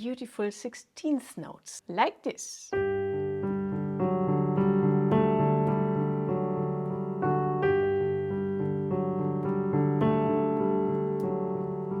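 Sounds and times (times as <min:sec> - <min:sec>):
piano playing: 0:02.7 - 0:12.0.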